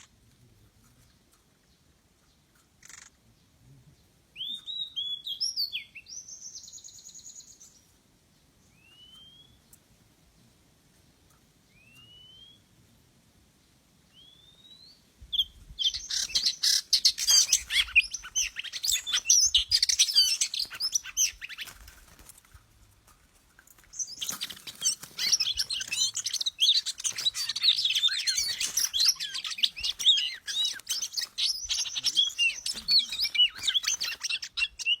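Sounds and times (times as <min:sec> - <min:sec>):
bird singing whistles and warbles: 0:04.3 - 0:07.9, 0:08.7 - 0:09.7, 0:11.7 - 0:12.7, 0:14.1 - 0:22.3, 0:23.9 - 0:35.0.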